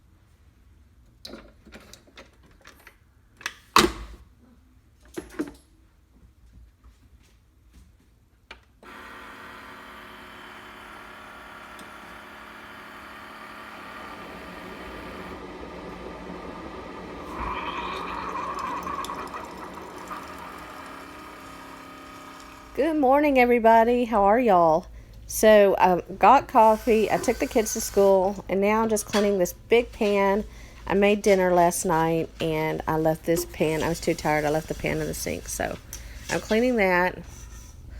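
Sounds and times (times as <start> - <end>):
dishes clinking in a sink: 29.0 - 29.5.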